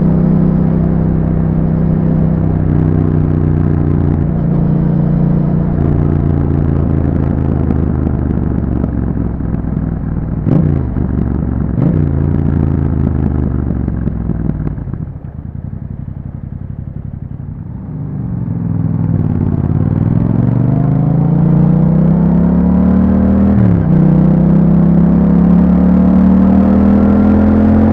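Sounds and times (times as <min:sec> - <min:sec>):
motorcycle engine revving: 0:00.0 - 0:27.9.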